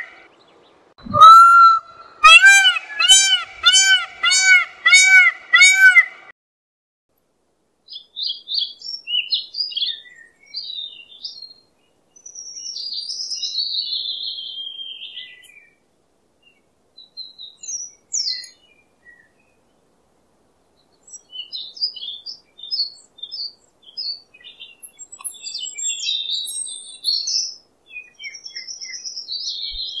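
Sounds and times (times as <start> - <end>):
birds chirping: 0.0 - 6.2.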